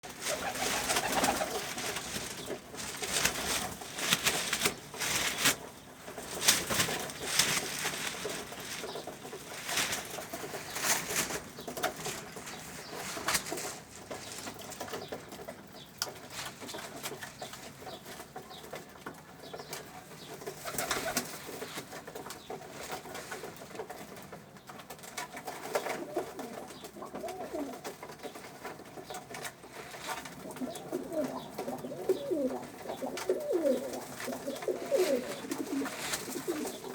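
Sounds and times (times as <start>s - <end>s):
clicks and knocks of birds moving: 0.0s - 36.9s
pigeons cooing: 0.1s - 14.8s, 25.7s - 36.9s.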